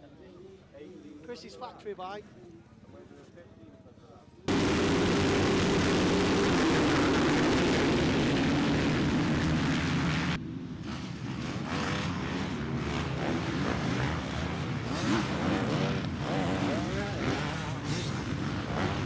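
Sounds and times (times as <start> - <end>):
motocross bike engines revving: 4.5 - 10.4, 12.0 - 19.0.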